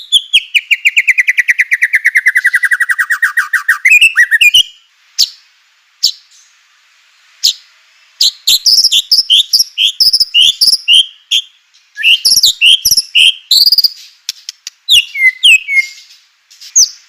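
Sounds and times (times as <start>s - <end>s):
bird chirping rapidly: 0.0s - 6.6s, 7.4s - 17.0s
bird singing sharp notes: 8.2s - 14.2s, 14.9s - 17.0s.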